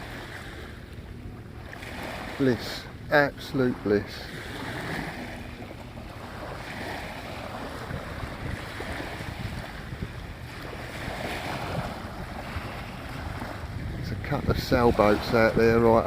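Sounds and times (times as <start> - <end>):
sea waves washing onto beach: 0.0 - 16.0
wind buffeting microphone: 0.0 - 16.0.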